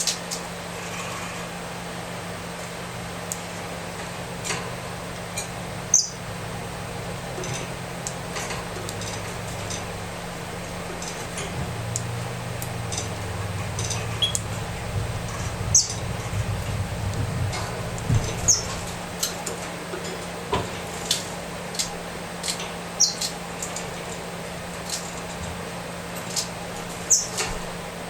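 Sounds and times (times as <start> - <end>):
low hum: 3.8 - 19.5
chick squeaking: 13.8 - 16.2, 18.2 - 19.0.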